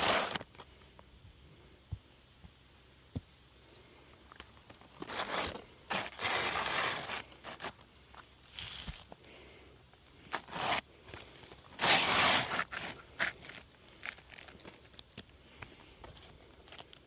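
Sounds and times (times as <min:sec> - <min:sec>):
roofing shingles scraping and rustling: 0:00.0 - 0:00.6, 0:04.7 - 0:07.8, 0:10.3 - 0:14.9.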